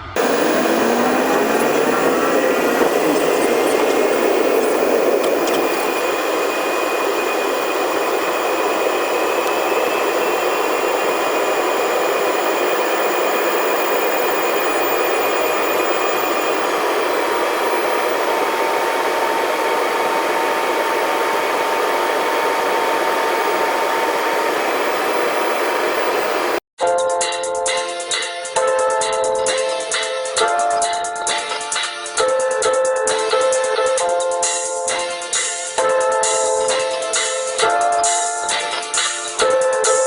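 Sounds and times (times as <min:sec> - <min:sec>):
jet engine and airflow hiss: 0:00.0 - 0:26.6
thin whining tones: 0:00.0 - 0:26.6.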